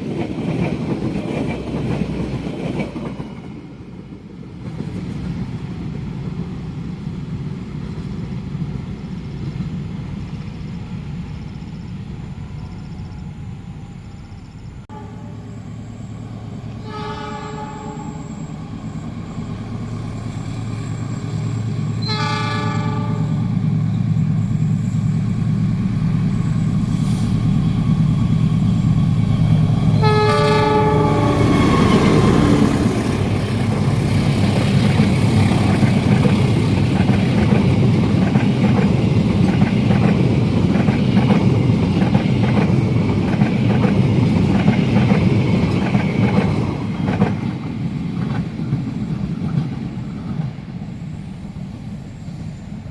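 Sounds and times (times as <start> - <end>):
train horn blasts: 14.9 - 15.6, 16.8 - 18.5, 22.0 - 23.5, 29.9 - 32.9.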